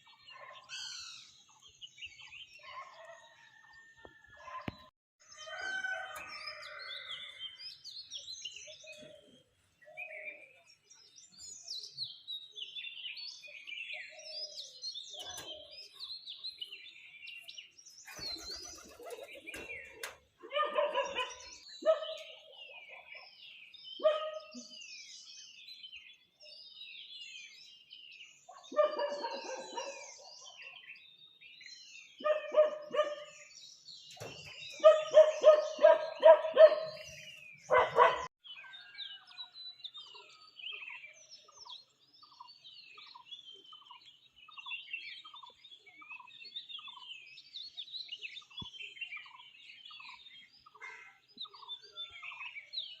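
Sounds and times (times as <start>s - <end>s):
small birds chirping and singing: 0.0s - 53.0s
dog barking: 2.6s - 3.4s, 20.4s - 22.3s, 24.0s - 24.6s, 28.5s - 30.6s, 32.2s - 33.3s, 34.8s - 37.1s, 37.7s - 38.3s.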